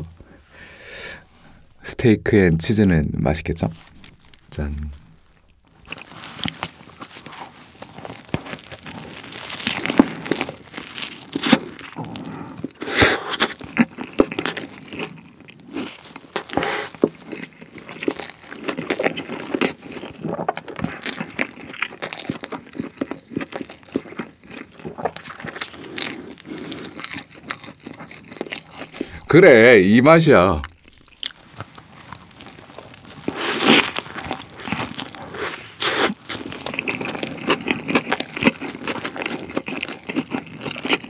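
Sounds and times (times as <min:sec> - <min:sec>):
chewing: 0:03.7 - 0:29.3, 0:30.6 - 0:41.0
sharp crunches of biting: 0:03.8 - 0:29.3, 0:30.6 - 0:41.0.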